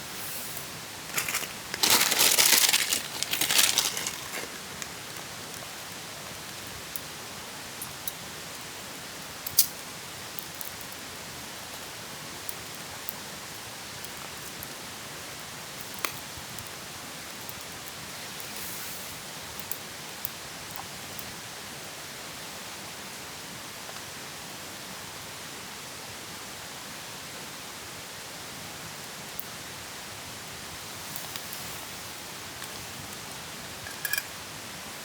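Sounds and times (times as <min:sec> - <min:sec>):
steady hiss: 0:00.0 - 0:35.0
crinkling handling noise: 0:00.2 - 0:05.7.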